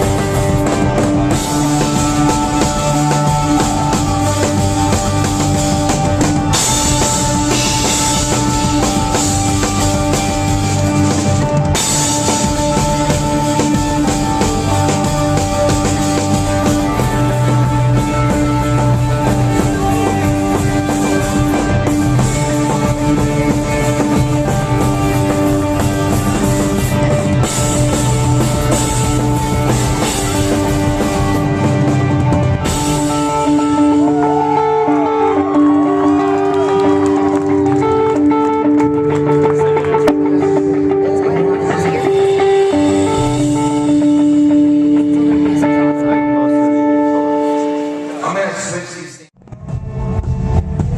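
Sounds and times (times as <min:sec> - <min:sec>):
drum kit: 0:00.0 - 0:46.1, 0:49.4 - 0:50.9
rock band playing live: 0:00.0 - 0:50.9.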